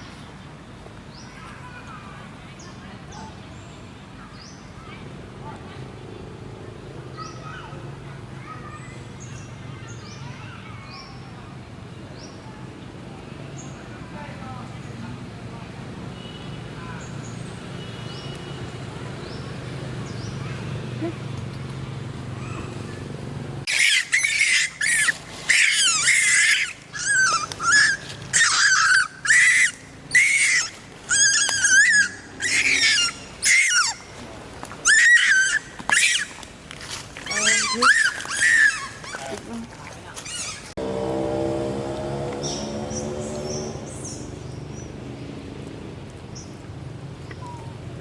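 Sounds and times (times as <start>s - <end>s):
baby monkey shrill calls: 23.7s - 34.0s, 34.8s - 36.4s, 37.2s - 39.3s, 40.3s - 40.7s
small animal squeaking: 23.7s - 34.0s, 34.8s - 36.4s, 37.2s - 39.4s, 40.2s - 40.7s.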